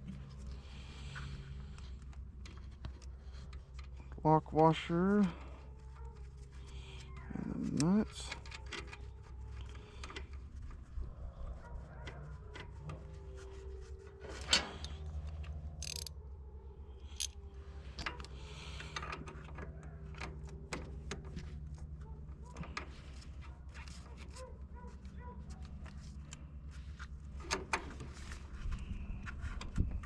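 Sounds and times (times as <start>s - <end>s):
ratcheting wrench: 15.8s - 16.1s
small metal clicks and taps: 15.8s - 16.1s.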